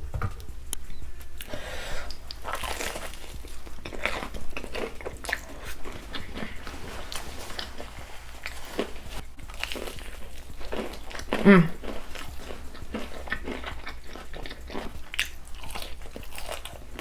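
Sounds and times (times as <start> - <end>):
close eating and crunching: 0.0 - 17.0.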